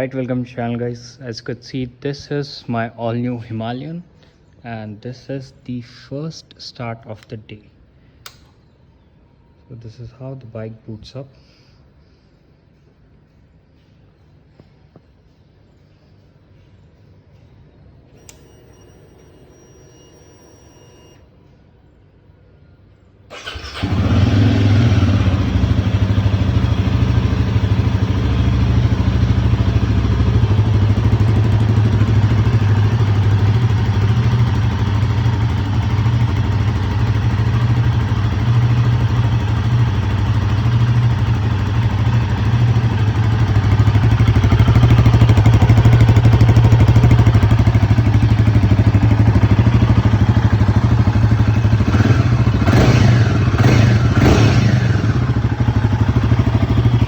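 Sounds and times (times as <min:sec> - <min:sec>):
motorcycle engine idling: 0:23.3 - 0:57.0.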